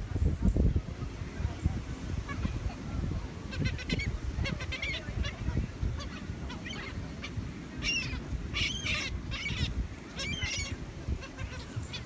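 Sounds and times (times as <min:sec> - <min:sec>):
gulls squawking: 0:02.1 - 0:12.0.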